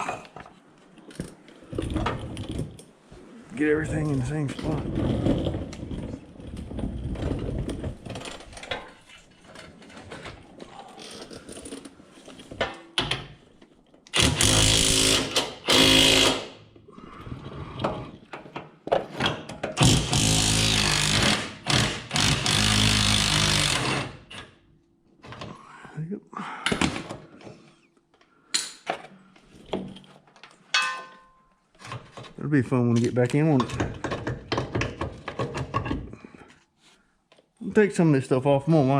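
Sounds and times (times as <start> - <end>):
tools clinking on metal: 30.7 - 31.6.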